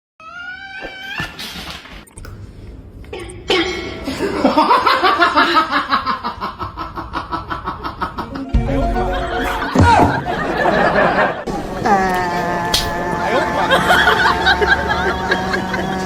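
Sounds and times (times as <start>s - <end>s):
rapid ha-ha laughter: 4.2s - 16.0s.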